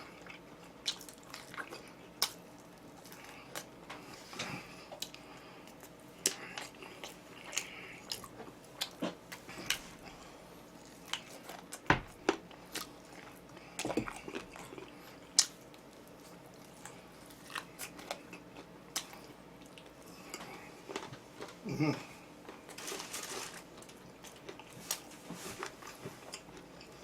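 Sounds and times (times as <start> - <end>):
crunching fried chicken: 0.0 - 21.6.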